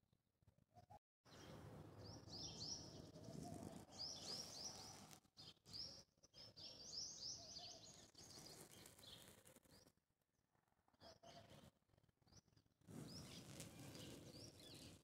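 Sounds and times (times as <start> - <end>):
small birds chirping: 1.3 - 9.9, 12.3 - 15.0.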